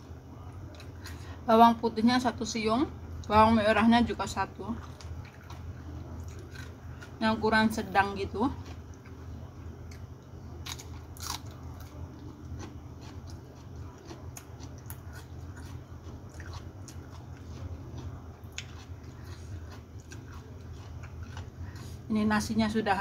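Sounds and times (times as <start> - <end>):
low steady hum: 0.0 - 23.0
person chewing lettuce: 4.7 - 7.2, 8.5 - 22.1.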